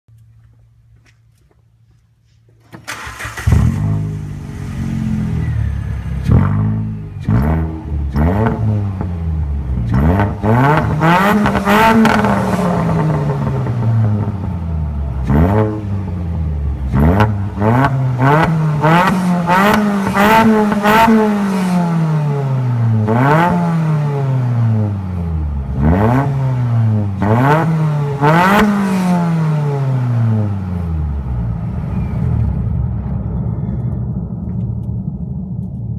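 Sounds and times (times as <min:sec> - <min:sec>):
car engine idling: 0:00.1 - 0:20.8, 0:30.4 - 0:35.9
car engine revving in a tunnel: 0:03.4 - 0:35.9.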